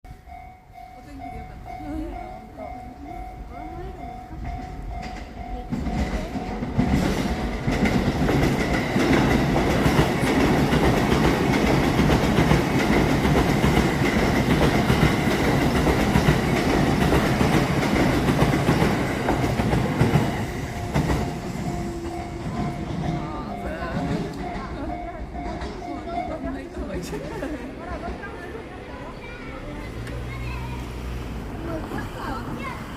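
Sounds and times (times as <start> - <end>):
crossing warning bell ringing: 0.1 - 27.7
train wheels rushing on rails: 1.2 - 32.9
wheels clacking over rail joints: 3.9 - 28.6.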